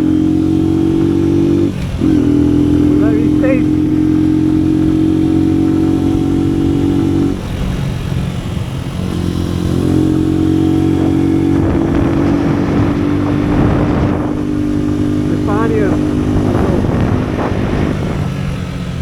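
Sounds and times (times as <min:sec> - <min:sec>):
motorcycle engine running: 0:00.0 - 0:19.0
rushing noise: 0:00.0 - 0:19.0.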